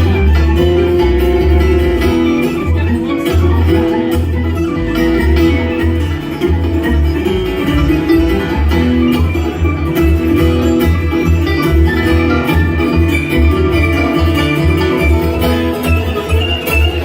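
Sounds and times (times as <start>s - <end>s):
bass beat: 0.0s - 17.0s
picked acoustic guitar: 0.0s - 17.0s.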